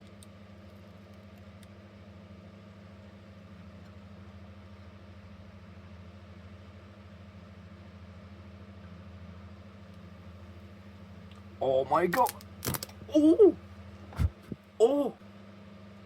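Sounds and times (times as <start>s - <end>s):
overdriven loudspeaker hum: 11.6s - 12.4s, 14.2s - 15.2s.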